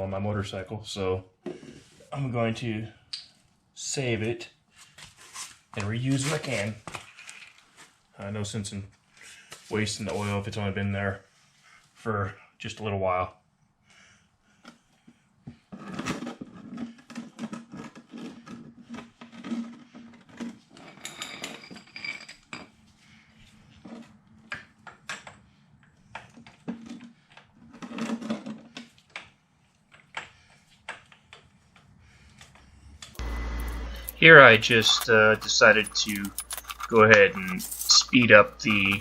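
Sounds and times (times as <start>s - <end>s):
metallic tool clinks: 33.3s - 39.0s
ringing metal clink: 33.6s - 39.0s.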